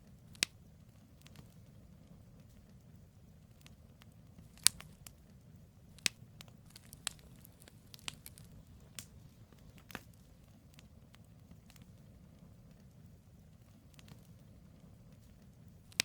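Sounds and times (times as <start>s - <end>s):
low rumble of fire: 0.0s - 16.0s
logs popping and snapping: 0.3s - 0.6s, 4.4s - 5.2s, 5.9s - 10.9s.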